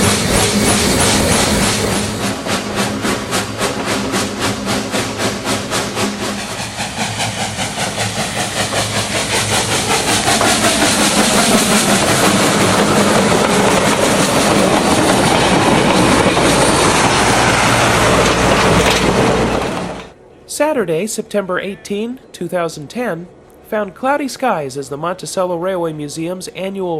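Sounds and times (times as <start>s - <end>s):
rush of steam and rolling: 0.0s - 20.2s
steam locomotive chuffing: 0.0s - 20.2s.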